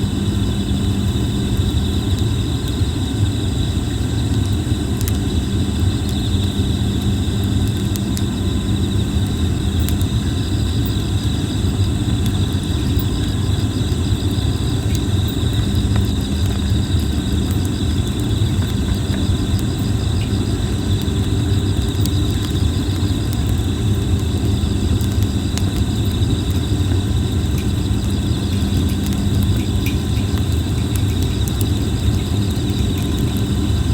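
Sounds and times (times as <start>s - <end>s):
campfire crackling and popping: 0.0s - 33.9s
insects chirping: 0.0s - 33.9s.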